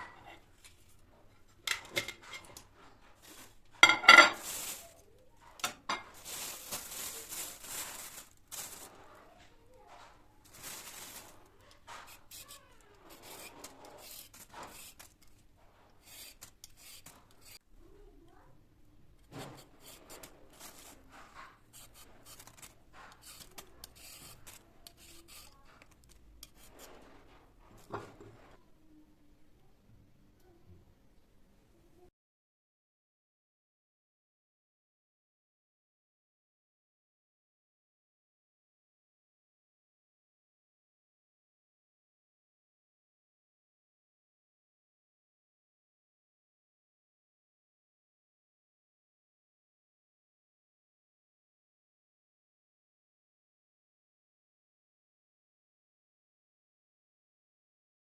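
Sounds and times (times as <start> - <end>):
items rubbed and set down: 0.0 - 17.6, 19.2 - 28.6.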